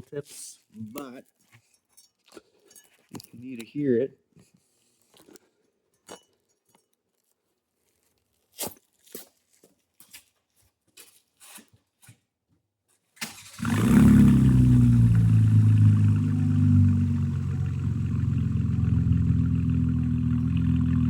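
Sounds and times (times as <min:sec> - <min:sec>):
car engine starting and running: 0:13.2 - 0:21.0.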